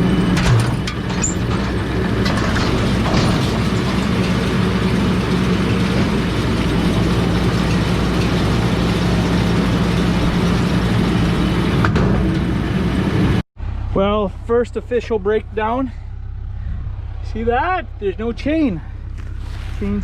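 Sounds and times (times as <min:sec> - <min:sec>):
round baler pickup and chains: 0:00.0 - 0:13.3
tractor engine running: 0:00.0 - 0:20.0.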